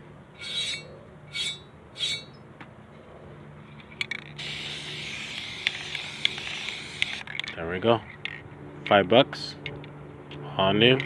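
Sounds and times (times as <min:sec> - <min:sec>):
metal parts scraping: 0:00.4 - 0:02.4
gas burner hissing: 0:04.4 - 0:07.2.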